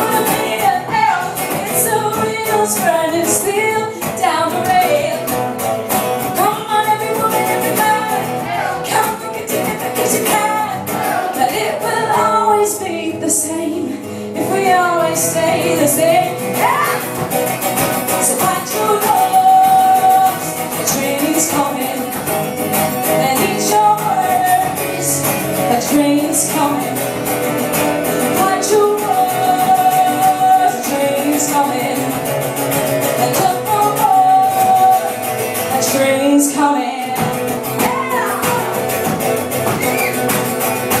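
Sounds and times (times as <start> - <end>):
woman singing: 0.0 - 17.4, 18.0 - 27.3, 28.1 - 40.3
guitar strummed hard: 0.0 - 41.0.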